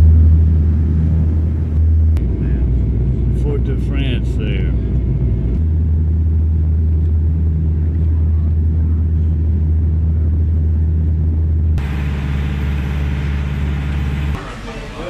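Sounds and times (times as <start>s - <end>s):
airliner cabin drone: 0.0s - 15.0s
hissy vehicle noise: 11.8s - 15.0s.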